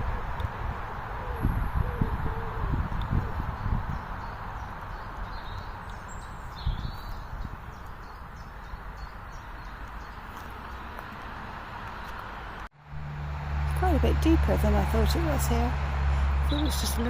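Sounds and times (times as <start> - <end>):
traffic hum: 0.0 - 17.0
bird chirps: 3.5 - 10.5.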